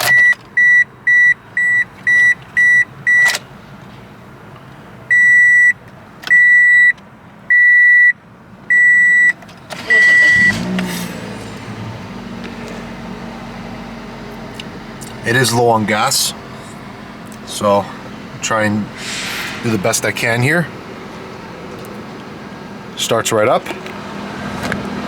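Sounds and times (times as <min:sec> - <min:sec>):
car warning chime beeps: 0:00.0 - 0:03.4, 0:05.1 - 0:10.7
car engine cranking and idling: 0:00.0 - 0:25.0.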